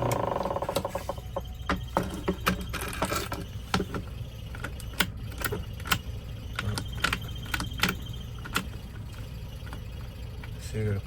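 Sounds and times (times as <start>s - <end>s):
low hum: 0.0s - 10.6s.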